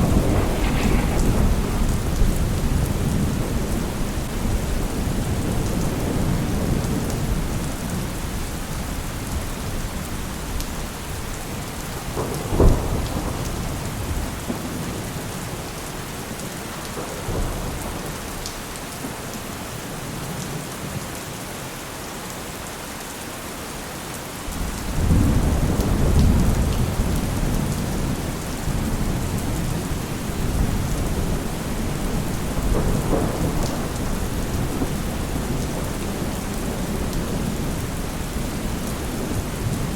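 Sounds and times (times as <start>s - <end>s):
thunder rumbling and cracking: 0.0s - 9.0s, 9.6s - 16.1s, 24.6s - 39.9s
heavy rain: 0.0s - 39.9s.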